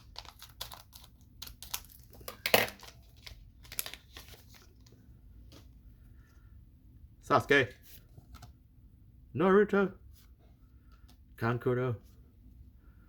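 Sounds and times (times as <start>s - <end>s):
wrapper crinkling and tearing: 0.0s - 4.7s.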